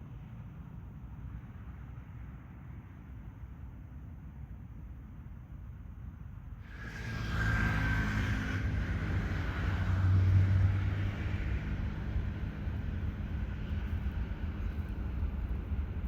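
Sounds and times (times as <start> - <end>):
jet engines rushing with high whine: 6.6 - 16.0
low jet rumble: 8.7 - 16.0.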